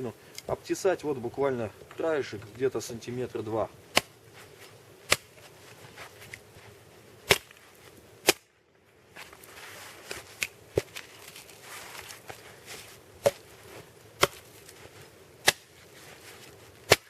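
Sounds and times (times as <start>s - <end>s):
axe chopping log: 3.9s - 4.2s, 5.1s - 5.4s, 7.3s - 7.6s, 14.2s - 14.4s, 15.4s - 15.7s.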